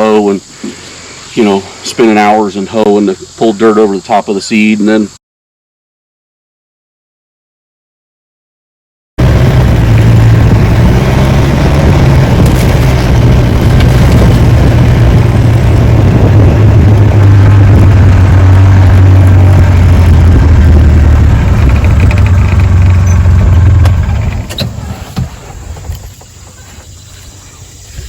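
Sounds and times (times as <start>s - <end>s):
utility vehicle engine running: 9.2s - 28.0s.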